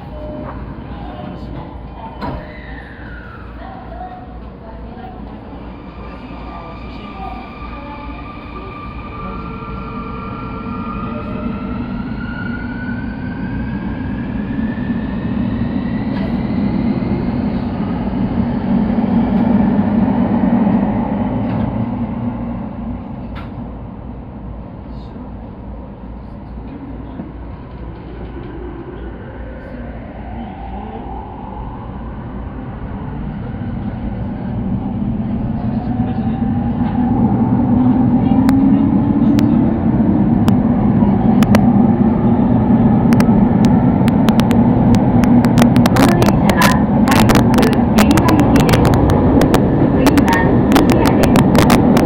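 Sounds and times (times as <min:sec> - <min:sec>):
wheels rumbling on rail: 0:00.0 - 0:52.0
electric train running noise: 0:26.4 - 0:52.0.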